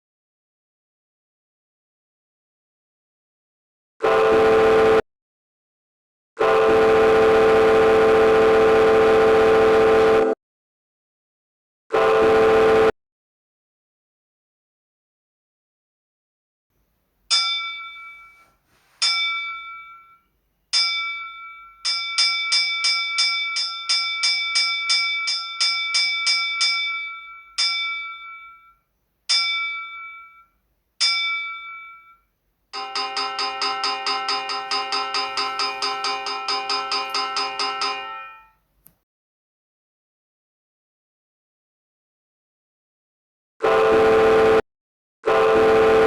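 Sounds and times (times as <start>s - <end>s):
ship's bell ringing: 17.3s - 38.6s.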